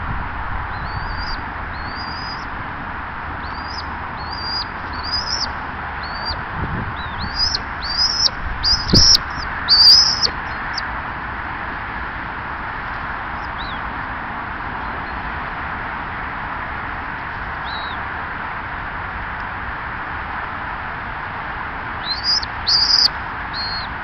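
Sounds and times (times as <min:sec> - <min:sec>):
bird whistling calls: 0:00.7 - 0:02.5, 0:03.4 - 0:06.4, 0:07.0 - 0:10.8, 0:13.5 - 0:13.8, 0:17.6 - 0:18.0, 0:22.0 - 0:23.9.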